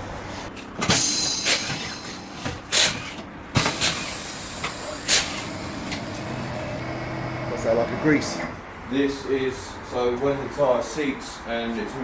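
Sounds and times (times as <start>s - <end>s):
compressed air hissing: 0.9s - 5.9s.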